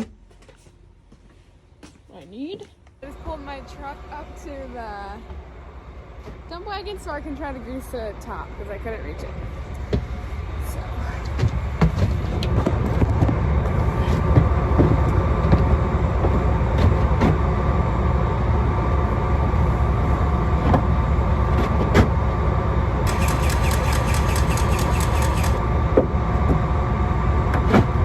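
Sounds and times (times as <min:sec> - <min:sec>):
vehicle engine rumbling: 0:22.8 - 0:27.8.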